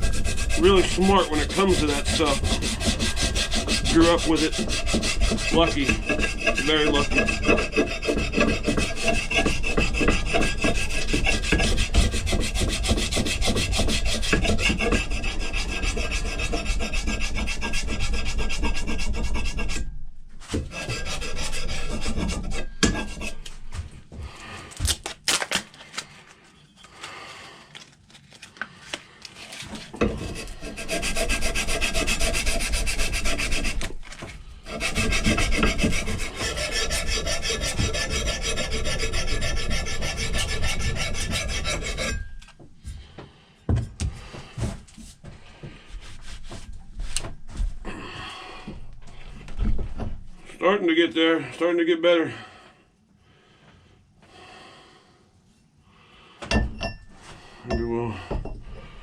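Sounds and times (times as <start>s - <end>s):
abrasive scraping steel axe head: 0.0s - 23.6s, 34.7s - 42.5s.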